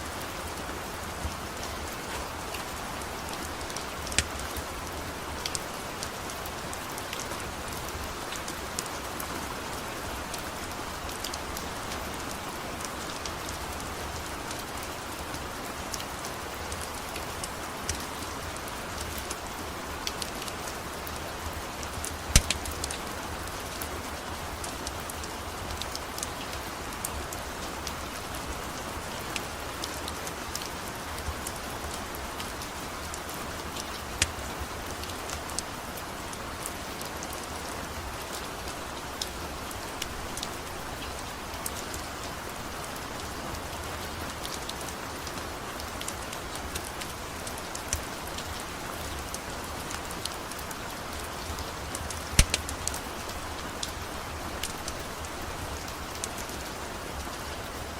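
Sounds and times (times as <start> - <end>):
steady rain hiss: 0.0 - 57.9
wood fire crackling: 1.3 - 9.0, 21.9 - 23.5, 33.7 - 35.7, 46.0 - 56.3.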